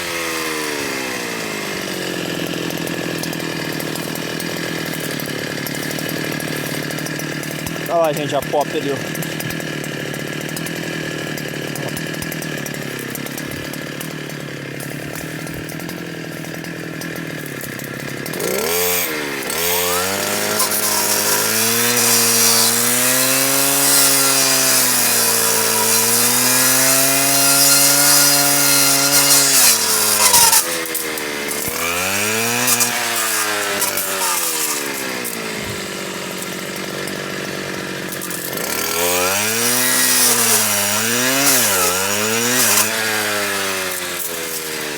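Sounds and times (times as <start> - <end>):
saw motor cutting wood: 0.0 - 44.9.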